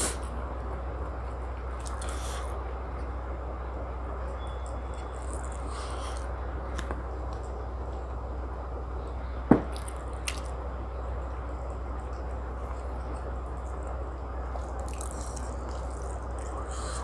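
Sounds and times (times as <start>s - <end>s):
steady low hum: 0.0s - 17.0s
mouth eating wet squishing: 1.7s - 2.7s, 4.4s - 7.4s, 9.6s - 10.6s, 12.8s - 17.0s.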